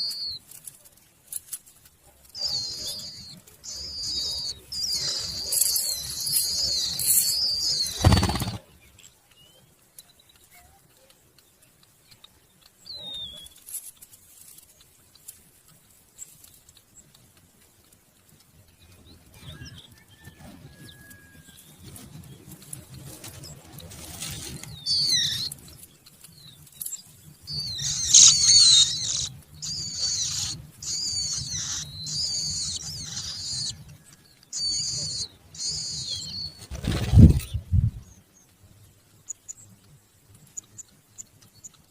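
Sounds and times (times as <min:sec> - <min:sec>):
nestlings squeaking: 0:00.0 - 0:08.6, 0:24.1 - 0:25.7, 0:26.8 - 0:33.9, 0:34.5 - 0:37.6.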